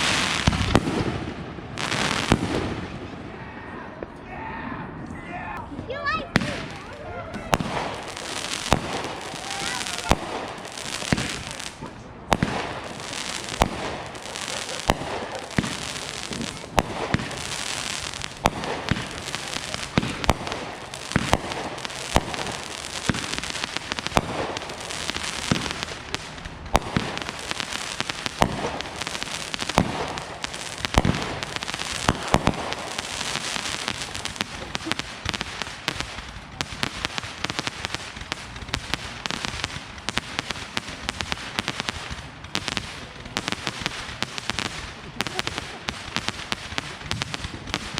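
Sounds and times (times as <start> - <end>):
fireworks bangs: 0.0 - 4.2, 5.6 - 47.9
fireworks crackling: 0.0 - 4.2, 5.6 - 47.9.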